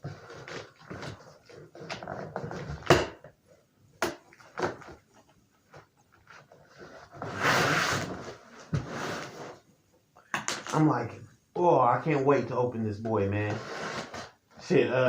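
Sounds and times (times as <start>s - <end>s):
cardboard scraping and rustling: 6.3s - 9.6s.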